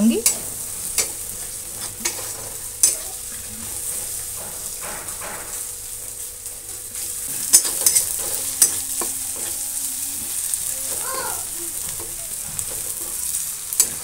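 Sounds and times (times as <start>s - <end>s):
onion and garlic sizzling: 0.0s - 14.0s
metal spatula scraping pan: 7.0s - 11.1s.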